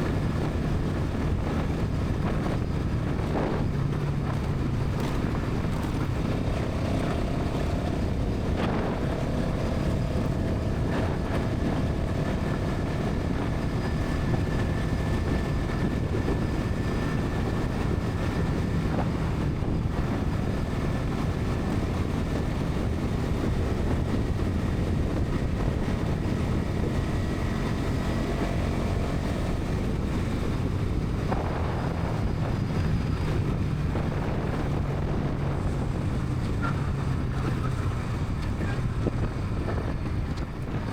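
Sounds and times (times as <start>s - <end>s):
motorcycle engine at speed: 0.0s - 40.9s
wind noise on microphone: 0.0s - 40.9s.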